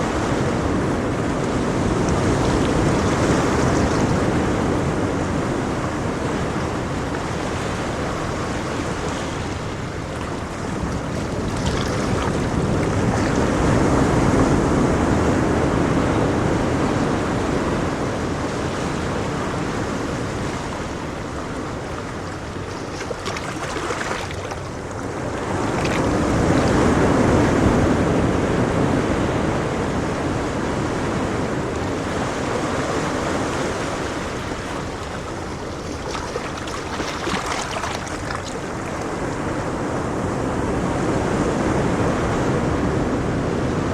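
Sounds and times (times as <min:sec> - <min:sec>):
ocean waves breaking on shore: 0:00.0 - 0:43.9.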